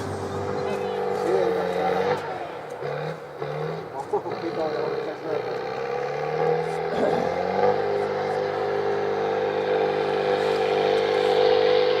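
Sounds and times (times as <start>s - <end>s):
tractor engine running under load: 0.0s - 12.0s.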